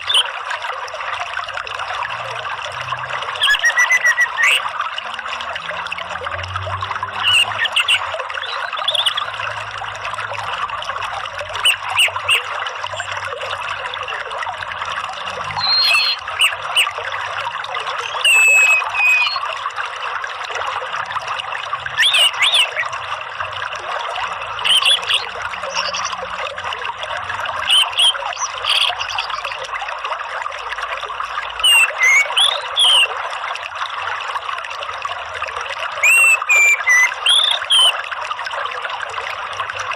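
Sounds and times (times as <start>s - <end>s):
water trickling: 0.0s - 39.9s
bird chirps and whistles: 3.4s - 4.6s, 15.5s - 16.9s, 18.1s - 19.4s, 22.0s - 22.8s, 31.6s - 33.1s, 36.0s - 38.0s.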